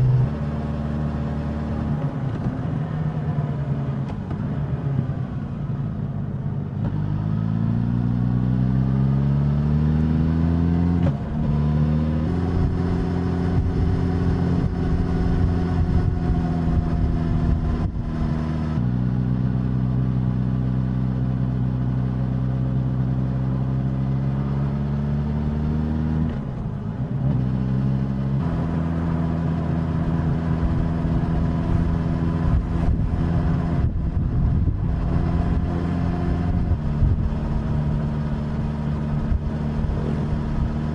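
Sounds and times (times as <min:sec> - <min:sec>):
motorcycle engine revving: 0:06.9 - 0:19.9, 0:27.2 - 0:40.9.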